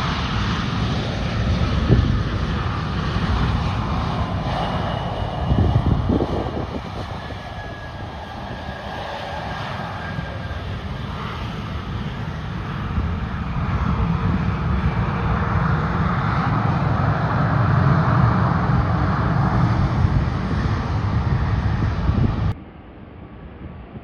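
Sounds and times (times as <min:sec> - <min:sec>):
airliner engines roaring: 0:00.0 - 0:24.0.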